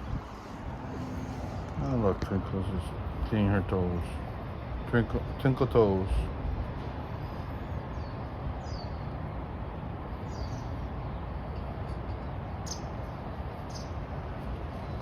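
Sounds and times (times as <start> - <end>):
outdoor background hiss: 0.0 - 15.0
high bird chirps: 7.8 - 9.1, 12.6 - 14.0.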